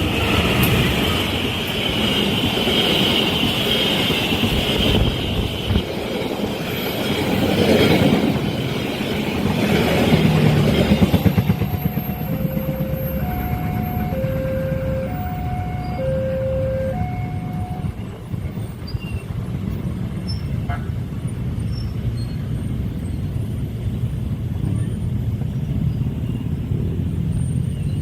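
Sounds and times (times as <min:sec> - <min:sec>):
train wheels rumbling on rails: 0:00.0 - 0:28.0
two-note level-crossing alarm: 0:11.7 - 0:18.0.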